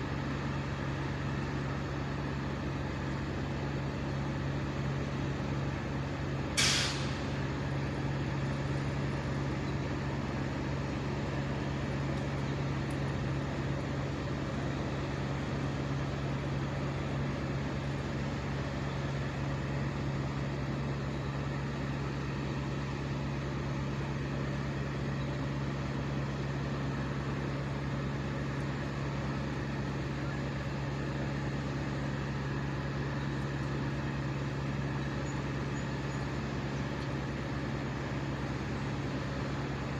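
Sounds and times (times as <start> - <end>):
engine humming at high speed: 0.0 - 39.9
sharp hiss of air: 6.6 - 7.4.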